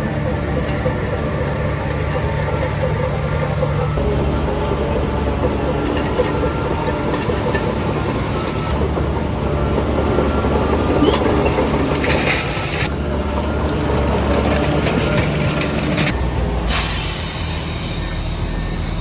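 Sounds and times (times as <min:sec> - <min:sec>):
bulldozer diesel engine running: 0:00.0 - 0:19.0
clatter of steel tracks: 0:00.0 - 0:19.0
short hiss: 0:16.7 - 0:18.9.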